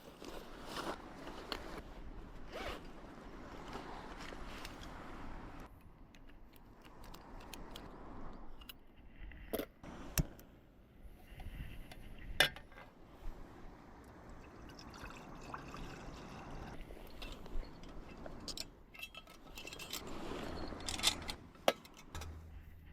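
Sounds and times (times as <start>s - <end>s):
water pouring into container: 14.4s - 16.8s
small clinks: 15.0s - 22.6s.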